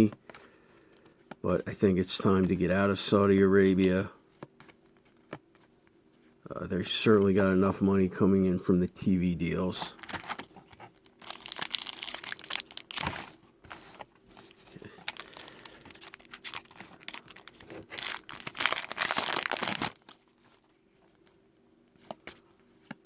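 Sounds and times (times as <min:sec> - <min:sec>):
card pack wrapper crinkling: 0:09.9 - 0:13.8, 0:14.4 - 0:20.8.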